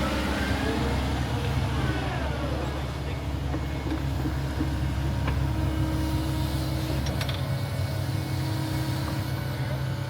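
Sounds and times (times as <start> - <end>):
heavy equipment engine droning: 0.0 - 10.0.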